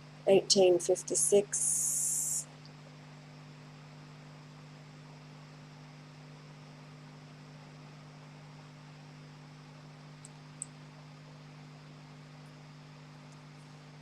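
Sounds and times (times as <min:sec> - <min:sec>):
low electrical hum: 0:00.0 - 0:14.0
faint hiss: 0:01.1 - 0:02.5.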